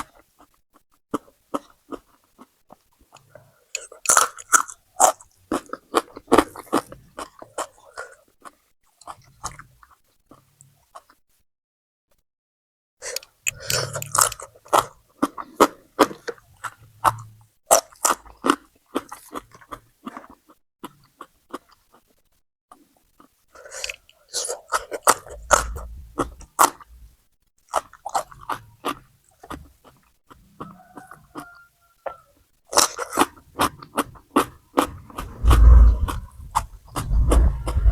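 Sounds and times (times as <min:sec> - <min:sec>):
crunching raw vegetables: 0:13.5 - 0:22.2, 0:27.7 - 0:35.5.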